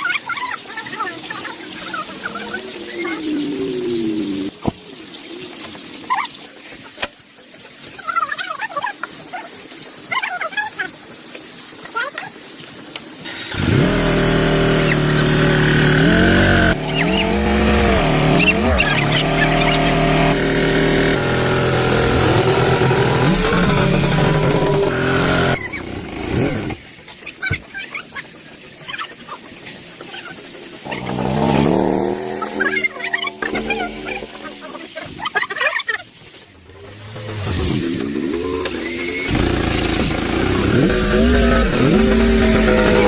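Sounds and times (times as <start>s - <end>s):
tractor engine revving: 13.3s - 26.8s, 30.8s - 34.4s, 36.8s - 43.0s.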